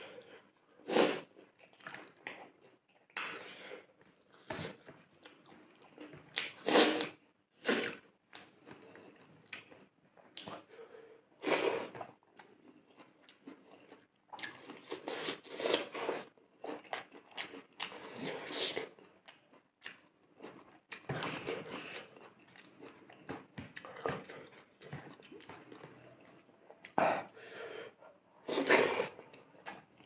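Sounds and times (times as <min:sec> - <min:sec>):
person chewing: 0:11.4 - 0:30.0.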